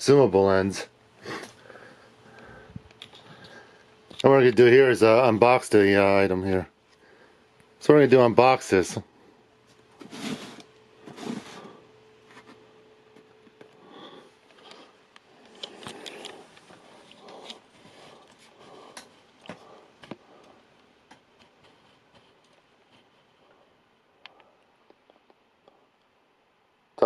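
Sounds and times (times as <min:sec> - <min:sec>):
cardboard rustling and scraping: 0:10.0 - 0:12.6.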